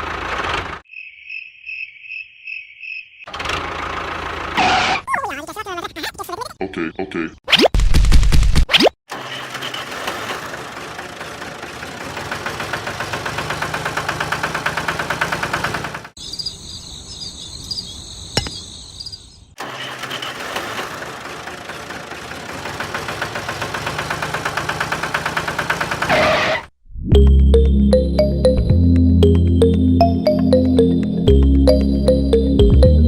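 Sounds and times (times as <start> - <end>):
small engine chugging: 0.0 - 0.8, 9.1 - 16.2, 19.6 - 26.4
high steady tone: 27.1 - 32.8.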